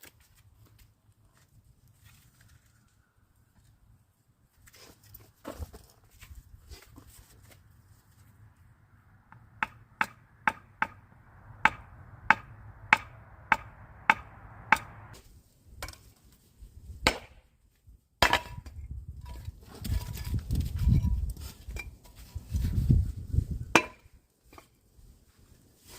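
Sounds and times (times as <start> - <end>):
hammer striking wood: 9.3 - 11.0, 11.6 - 15.1.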